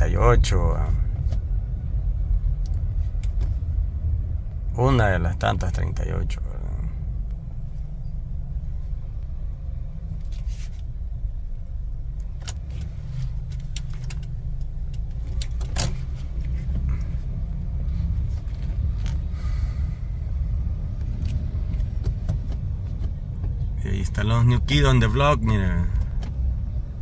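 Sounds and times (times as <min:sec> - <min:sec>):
car driving low rumble: 0:00.0 - 0:27.0
light clicks and rattles: 0:12.1 - 0:17.3.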